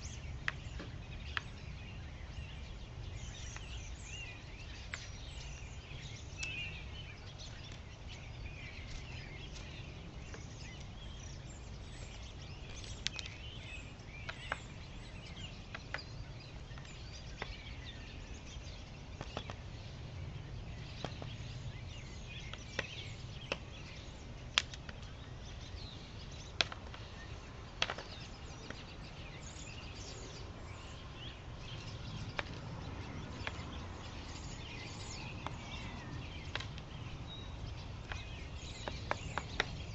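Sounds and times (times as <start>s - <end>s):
small birds chirping: 0.0s - 39.9s
sharp ticks and taps: 36.5s - 36.9s.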